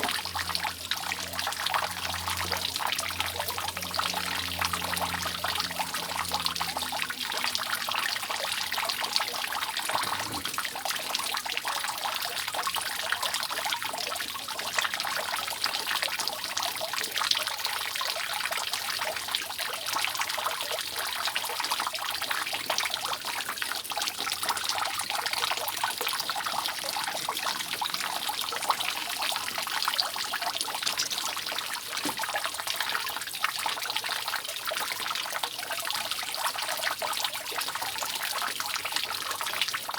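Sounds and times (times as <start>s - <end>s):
water dripping off roof: 0.0s - 39.9s.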